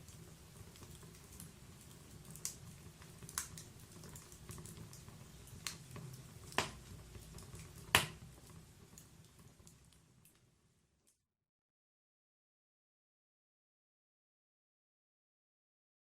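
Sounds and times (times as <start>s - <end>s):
wood fire crackling: 0.0s - 11.2s
loud fire pops: 5.6s - 6.9s, 7.5s - 8.3s.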